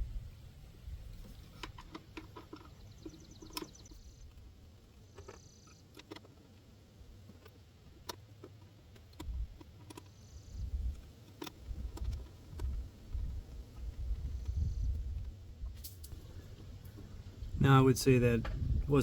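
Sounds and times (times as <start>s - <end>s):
low rumble: 0.0s - 1.1s.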